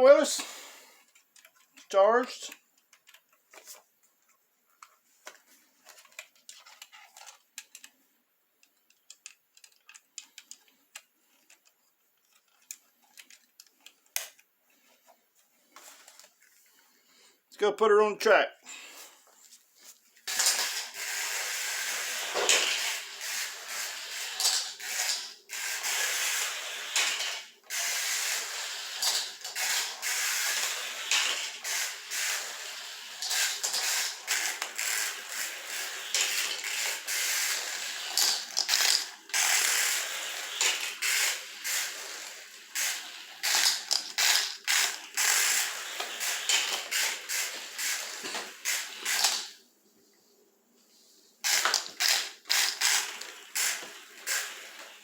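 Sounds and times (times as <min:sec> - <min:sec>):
toy car motor whirring: 0:20.2 - 0:49.6, 0:51.4 - 0:55.0.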